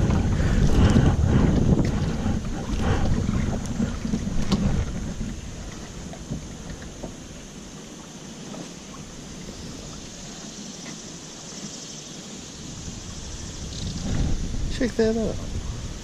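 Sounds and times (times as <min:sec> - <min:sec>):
wind buffeting microphone: 0:00.0 - 0:07.5, 0:12.6 - 0:16.0
water: 0:00.0 - 0:16.0.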